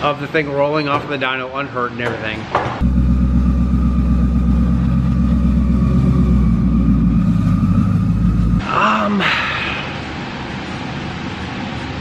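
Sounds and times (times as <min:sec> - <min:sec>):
car engine rumbling: 0:02.0 - 0:08.8.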